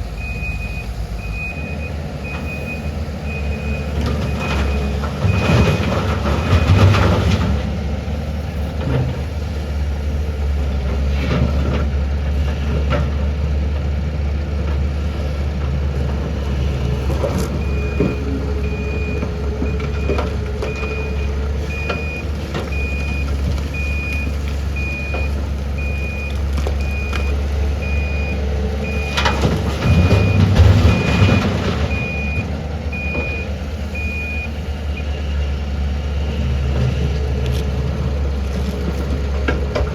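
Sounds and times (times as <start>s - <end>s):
diesel excavator engine running: 0.0s - 39.9s.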